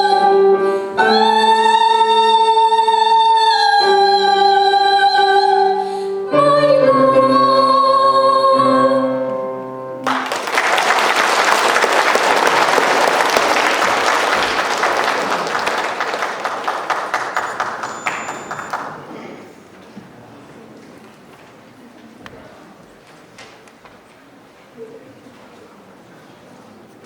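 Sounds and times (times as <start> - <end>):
person singing long held notes: 0.0 - 9.5
audience applause: 10.0 - 19.2.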